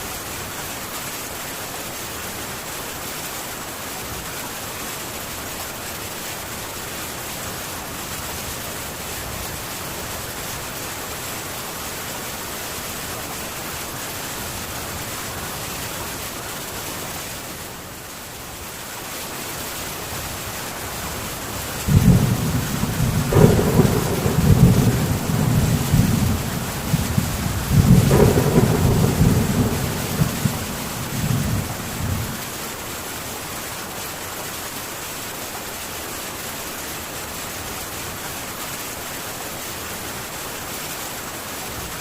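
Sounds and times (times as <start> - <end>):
heavy rain on tin roof: 0.0 - 42.0
thunder rumbling: 21.8 - 32.4.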